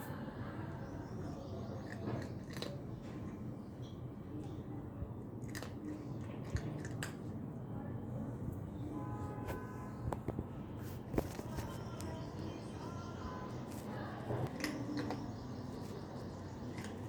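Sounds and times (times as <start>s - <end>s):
cat crunching dry kibble: 1.8s - 3.4s, 5.2s - 7.4s, 13.8s - 17.0s.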